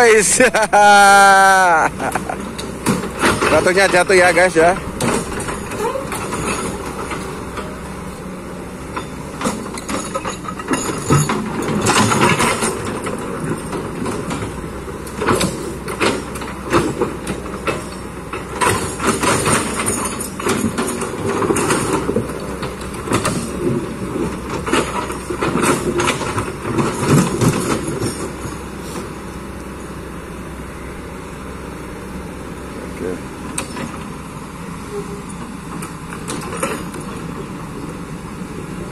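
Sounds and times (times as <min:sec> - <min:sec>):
excavator diesel engine: 0:00.0 - 0:38.9
bucket scraping and clanking rocks: 0:01.8 - 0:07.8, 0:09.5 - 0:14.6, 0:15.2 - 0:29.1.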